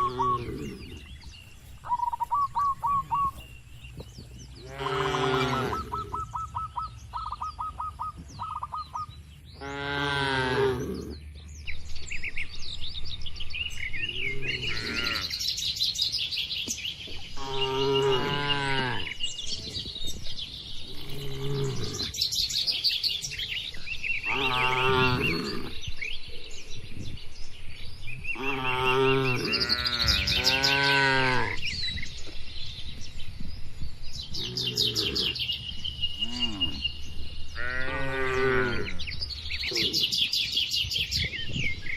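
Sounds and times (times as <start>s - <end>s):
birds chirping: 0.0s - 41.9s
cattle mooing: 4.6s - 6.1s, 24.3s - 25.8s.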